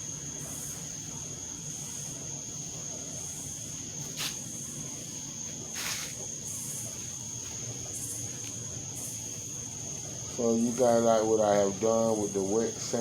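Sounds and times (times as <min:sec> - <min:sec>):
rustles or scrapes: 0:05.7 - 0:06.2.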